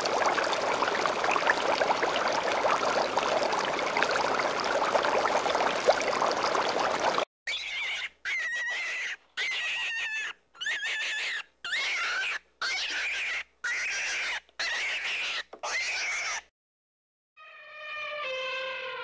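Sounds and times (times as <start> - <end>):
small animal high-pitched calls: 7.5 - 16.4.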